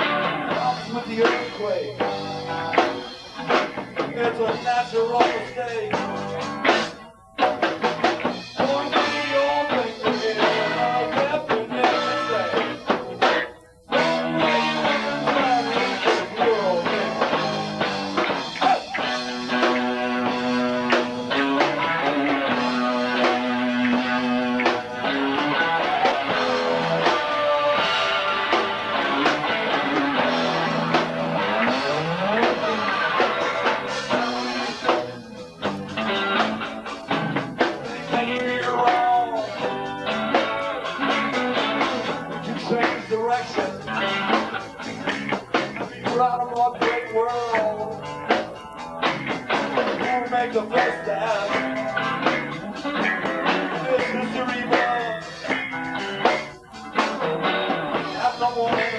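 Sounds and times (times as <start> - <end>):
bass guitar: 0.0 - 58.9
drum kit: 0.0 - 58.9
electric guitar: 0.0 - 58.9.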